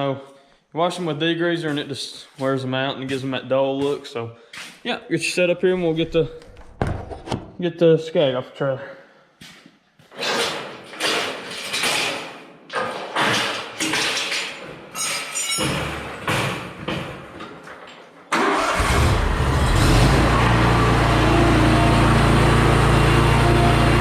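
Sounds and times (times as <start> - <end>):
scuffing and handling noises: 9.4 - 10.2
lawn mower engine running: 18.4 - 24.0.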